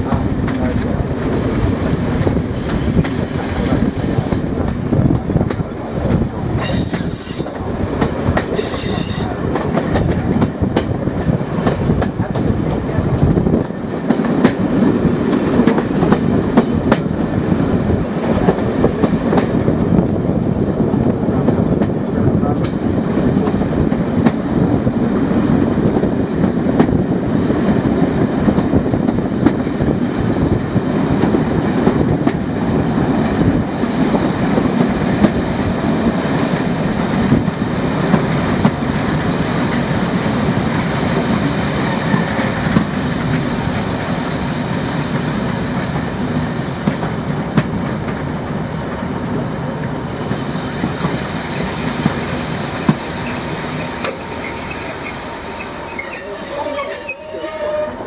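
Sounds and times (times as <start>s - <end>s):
train wheels rumbling on rails: 0.0s - 58.0s
faint high wheel squeal: 6.6s - 7.6s, 35.4s - 37.0s, 41.9s - 42.4s, 53.2s - 58.0s.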